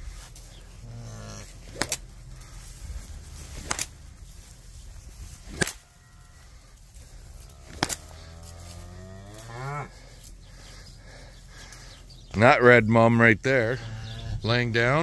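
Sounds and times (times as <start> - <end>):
cattle lowing: 0.0 - 12.4, 13.5 - 14.7
sharp snaps: 1.7 - 2.0, 3.5 - 4.0, 5.5 - 5.8, 7.7 - 8.1.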